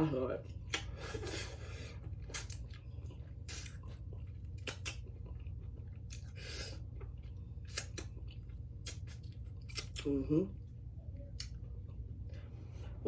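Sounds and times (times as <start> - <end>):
steady low hum: 0.0 - 13.0
chewing fried chicken: 0.3 - 13.0
wet mouth smacks: 0.7 - 1.0, 2.2 - 2.6, 4.5 - 5.1, 7.6 - 8.2, 8.8 - 10.1.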